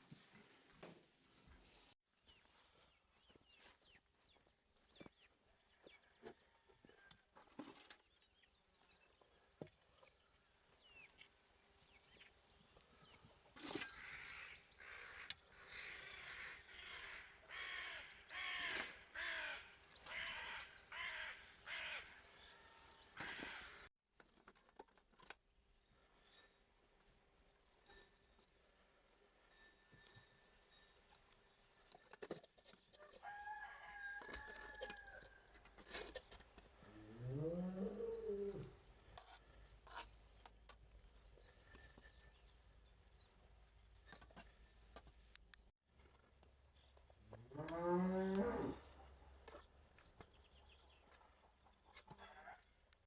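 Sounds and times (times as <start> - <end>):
harsh repeated bird calls: 13.9 - 22.2, 23.2 - 23.9.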